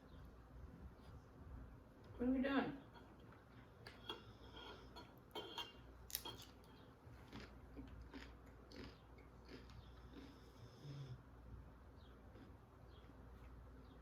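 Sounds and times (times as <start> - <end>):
faint chewing and mouth sounds: 2.9 - 14.0.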